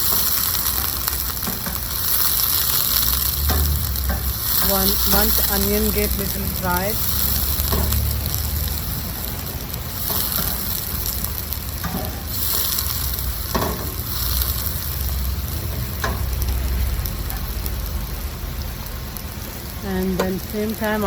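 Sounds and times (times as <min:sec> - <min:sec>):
onions sizzling in oil: 0:00.0 - 0:21.0.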